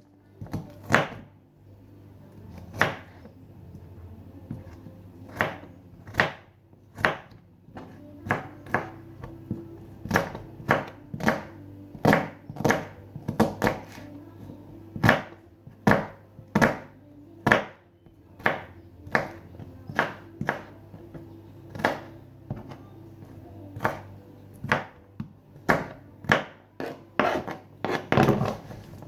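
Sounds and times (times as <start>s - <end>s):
faint background music: 0.0s - 29.0s
knife chopping on cutting board: 2.6s - 3.2s, 4.5s - 14.0s, 15.0s - 17.8s, 18.4s - 22.8s, 23.7s - 25.0s, 25.6s - 28.7s.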